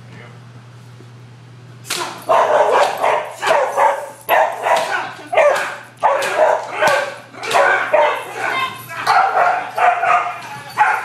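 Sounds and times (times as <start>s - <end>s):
dog barking rapidly: 2.3s - 11.0s.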